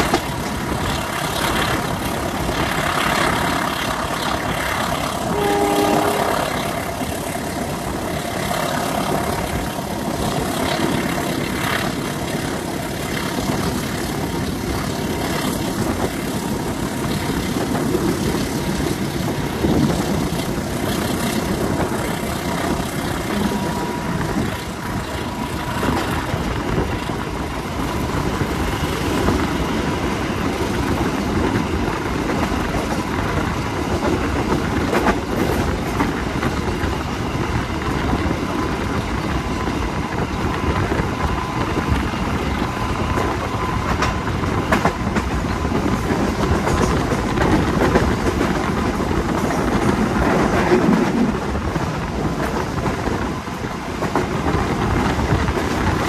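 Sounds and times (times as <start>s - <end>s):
diesel locomotive rumble: 0.0s - 56.0s
wheel and rail noise: 0.0s - 56.0s
brief tone: 5.3s - 6.6s.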